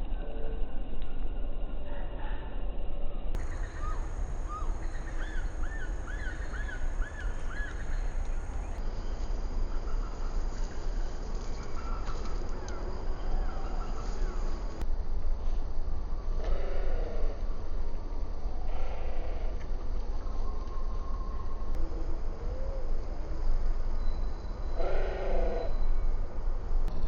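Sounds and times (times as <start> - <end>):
loud steady low rumble: 0.0 - 9.8
small birds chirping: 3.4 - 14.8.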